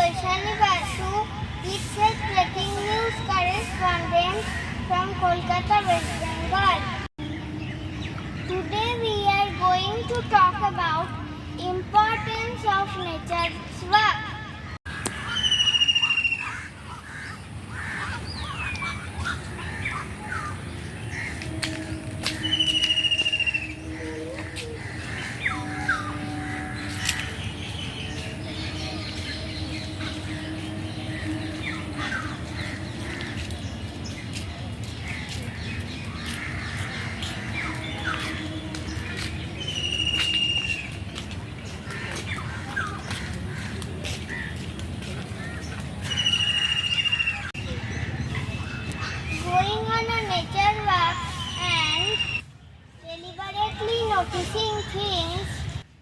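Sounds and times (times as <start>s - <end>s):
bird chirps: 14.9s - 17.0s, 18.0s - 34.5s, 36.0s - 41.1s, 51.1s - 52.4s
downward-sweeping bird whistle: 15.2s - 16.6s, 21.3s - 27.2s, 39.6s - 41.0s, 46.1s - 47.5s, 51.3s - 52.5s
buzzing trilled bird note: 21.0s - 33.3s.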